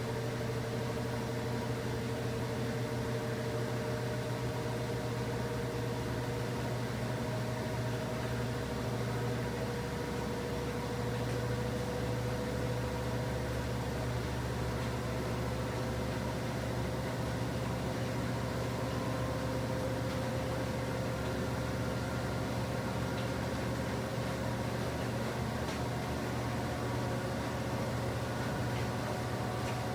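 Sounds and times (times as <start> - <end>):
washing machine motor hum: 0.0 - 29.9.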